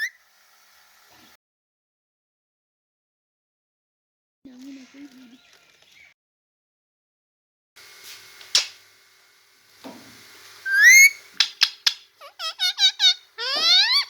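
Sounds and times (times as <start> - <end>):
sharp click: 8.5 - 8.8
parrot whistling: 10.6 - 14.0.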